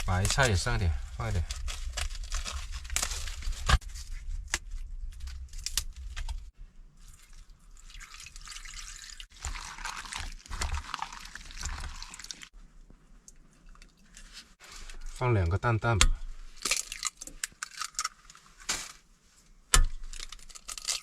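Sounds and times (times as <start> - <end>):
soup bubbling in a pot: 6.9 - 12.6.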